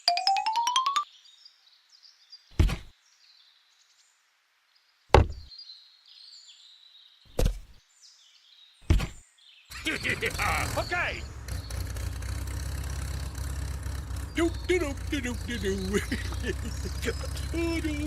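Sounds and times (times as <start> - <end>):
sharp knocks: 2.6 - 2.9, 5.1 - 5.5, 8.9 - 9.2.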